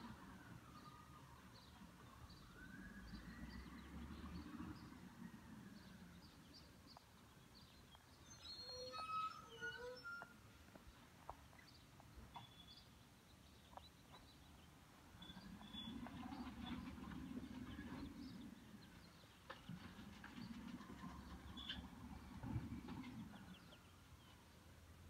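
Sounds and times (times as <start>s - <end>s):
bird chirps: 5.8s - 24.4s.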